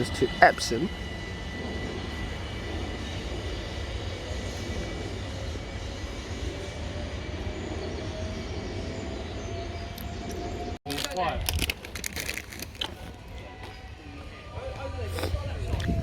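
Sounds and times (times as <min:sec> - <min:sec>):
faint rising whine: 0:00.0 - 0:10.8
electric train rumbling: 0:00.0 - 0:16.0.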